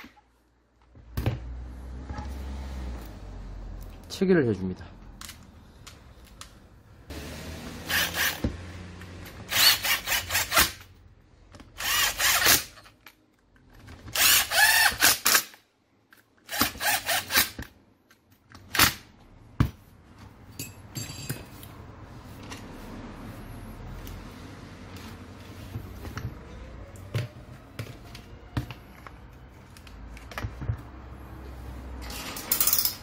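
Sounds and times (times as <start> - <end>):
power drill driving screws: 7.9 - 8.4, 9.5 - 10.7, 11.8 - 12.6, 14.1 - 15.4.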